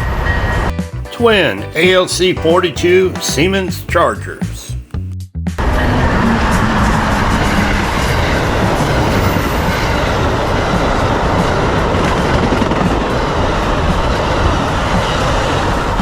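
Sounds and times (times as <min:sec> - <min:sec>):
train wheels rumbling on rail: 0:05.6 - 0:16.0.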